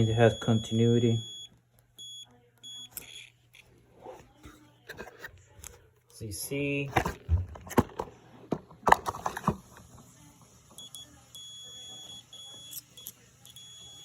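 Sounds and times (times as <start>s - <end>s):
multimeter continuity beep: 0.0s - 3.6s, 10.7s - 14.0s.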